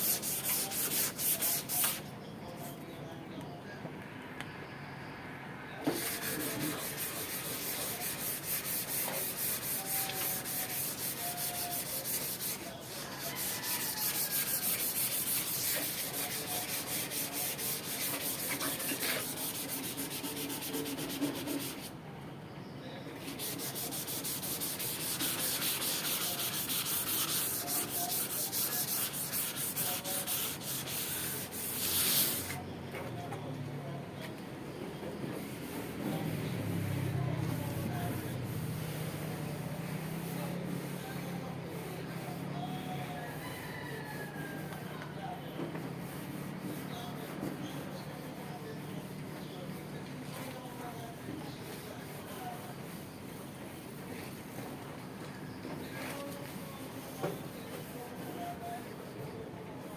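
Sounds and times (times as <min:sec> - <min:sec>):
sandpaper rubbing on metal: 0:00.0 - 0:02.1, 0:05.9 - 0:21.9, 0:23.2 - 0:32.6, 0:35.4 - 0:44.8, 0:45.8 - 0:54.6.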